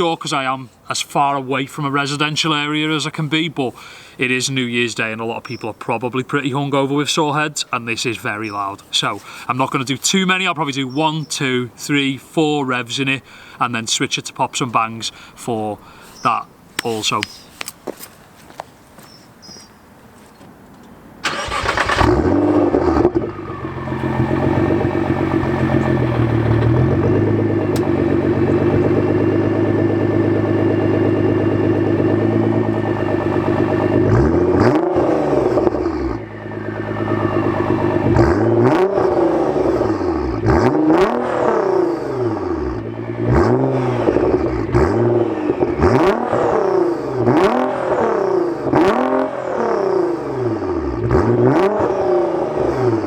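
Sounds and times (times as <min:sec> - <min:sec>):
car exhaust revving: 0:21.2 - 0:53.0.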